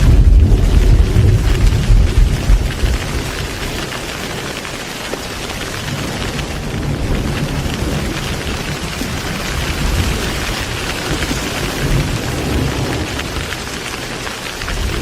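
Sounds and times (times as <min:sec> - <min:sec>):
low rumble of thunder: 0:00.0 - 0:04.5, 0:05.7 - 0:15.0
heavy rain: 0:00.0 - 0:15.0.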